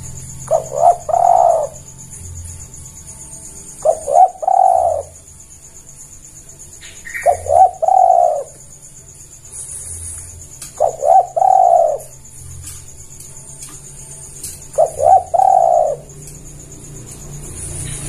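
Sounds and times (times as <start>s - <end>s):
dove cooing: 0.0s - 2.0s, 3.6s - 5.4s, 6.8s - 8.7s, 9.7s - 13.0s, 13.6s - 17.2s.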